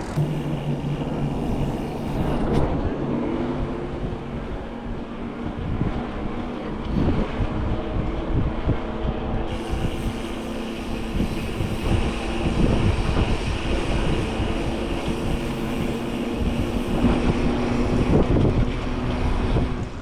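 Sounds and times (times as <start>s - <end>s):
steady buzzing tone: 0.0s - 8.5s, 9.4s - 20.0s
wind on microphone: 0.0s - 20.0s
bike tyres on dirt trail: 9.5s - 20.0s.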